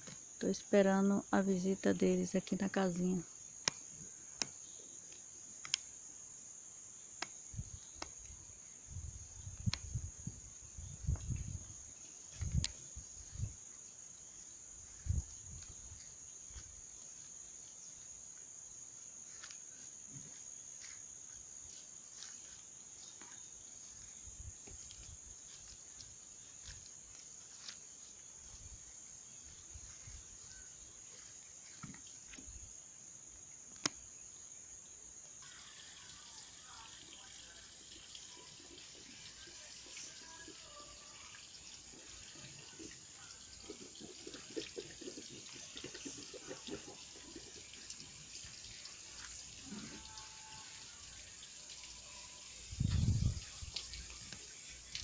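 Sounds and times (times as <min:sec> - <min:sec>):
insects trilling: 0:00.0 - 0:55.0
faint clicks: 0:04.4 - 0:05.9.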